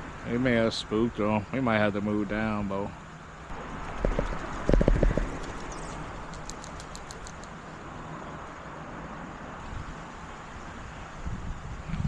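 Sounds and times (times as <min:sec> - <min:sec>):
distant road traffic hum: 0:00.0 - 0:12.0
faint high clicks: 0:03.8 - 0:07.6.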